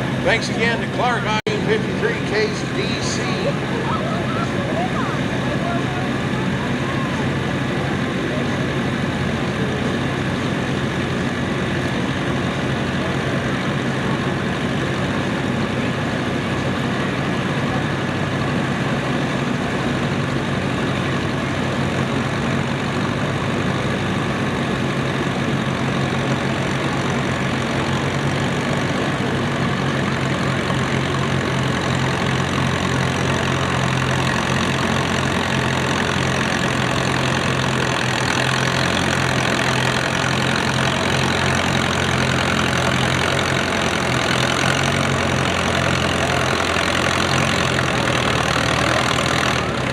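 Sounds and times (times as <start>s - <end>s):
tractor engine under load: 0.0s - 49.9s.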